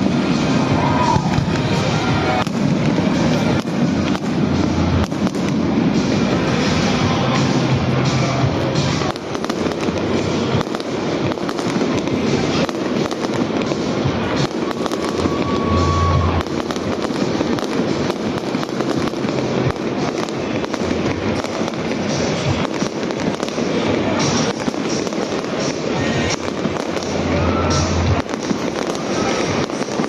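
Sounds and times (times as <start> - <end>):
fireworks crackling and banging: 0.0 - 30.0.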